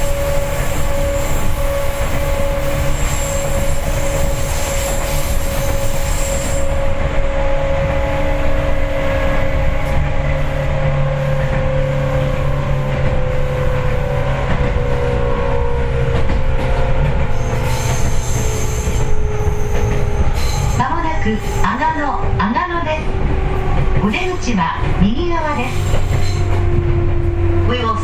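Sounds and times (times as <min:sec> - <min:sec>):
high wheel squeal: 0:00.0 - 0:06.9, 0:17.3 - 0:21.8, 0:25.6 - 0:26.6
train wheels rumbling: 0:00.0 - 0:28.0.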